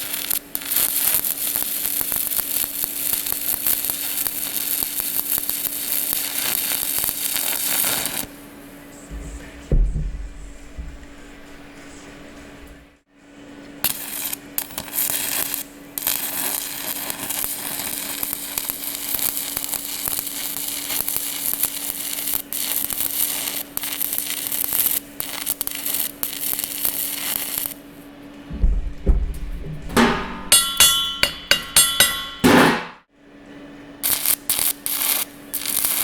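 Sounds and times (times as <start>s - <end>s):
welding arc crackling: 0.0s - 8.4s, 13.8s - 27.8s, 34.0s - 36.0s
steady low hum: 8.7s - 13.0s, 28.3s - 33.1s.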